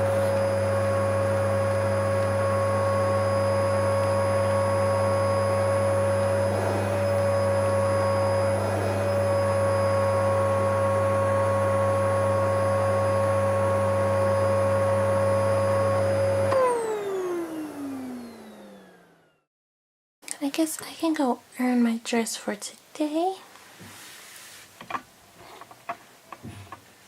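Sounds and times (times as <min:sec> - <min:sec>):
toy vacuum motor running: 0:02.1 - 0:10.8.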